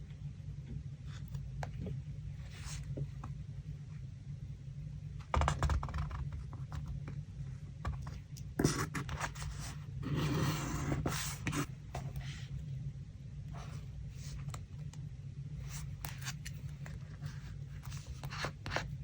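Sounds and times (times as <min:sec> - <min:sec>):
steady low hum: 0:00.0 - 0:19.0
scratching on a desk: 0:05.3 - 0:07.0, 0:07.8 - 0:12.4, 0:15.6 - 0:19.0.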